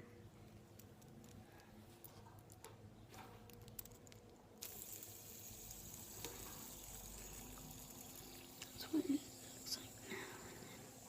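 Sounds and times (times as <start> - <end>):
steady faint hiss: 0.0 - 11.0
faint clicks and handling: 0.4 - 5.0.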